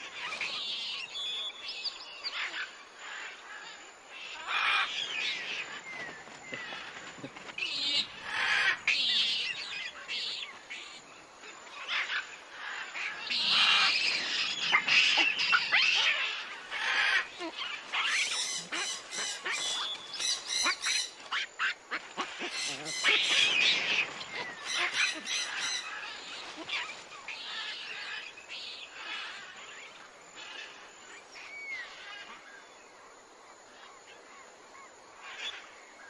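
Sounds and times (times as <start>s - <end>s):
birds chirping: 0.0s - 32.8s.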